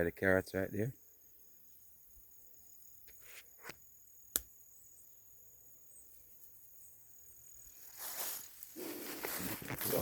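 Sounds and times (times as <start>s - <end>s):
insects droning: 0.0s - 10.0s
sharp snaps: 3.6s - 4.6s.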